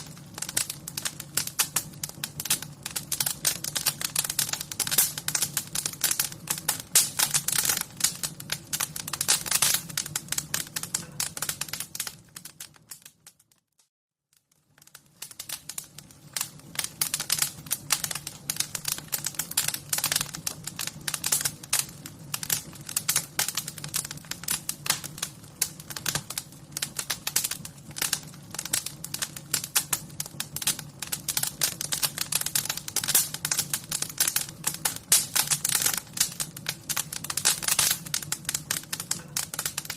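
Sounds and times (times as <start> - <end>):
wood fire crackling: 0.0 - 13.6, 14.3 - 39.9.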